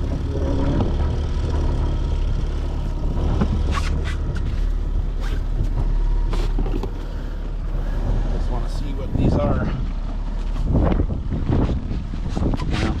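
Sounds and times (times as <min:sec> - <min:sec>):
wind buffeting microphone: 0:06.9 - 0:13.0.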